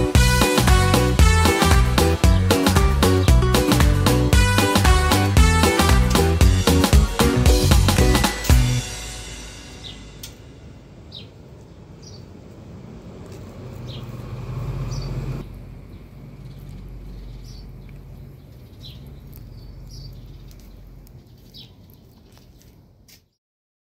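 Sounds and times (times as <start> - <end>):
small birds chirping: 11.0 - 12.7, 13.3 - 23.4.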